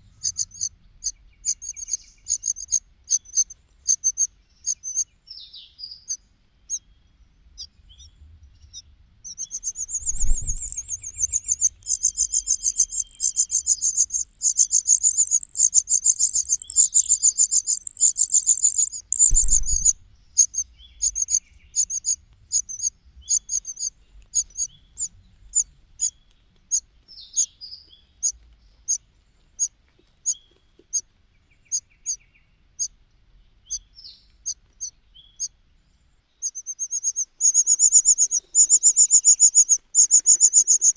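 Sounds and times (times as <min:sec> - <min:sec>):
chick cheeping: 0:09.4 - 0:22.9, 0:36.4 - 0:40.9
nestlings cheeping chorus: 0:09.5 - 0:24.7, 0:36.4 - 0:40.9.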